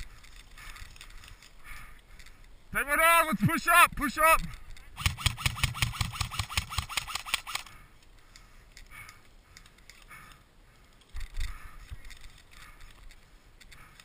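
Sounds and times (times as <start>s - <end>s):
airsoft gun firing: 5.0s - 7.7s.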